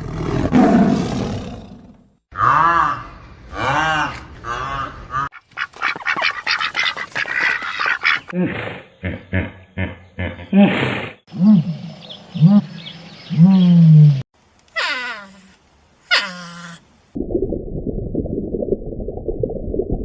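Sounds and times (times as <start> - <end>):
animal calls: 3.7 - 11.0.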